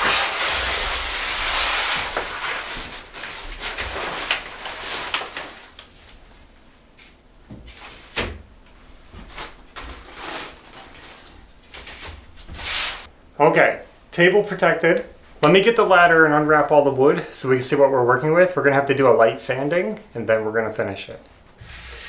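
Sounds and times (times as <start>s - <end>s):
covering rustling: 0.0s - 13.1s.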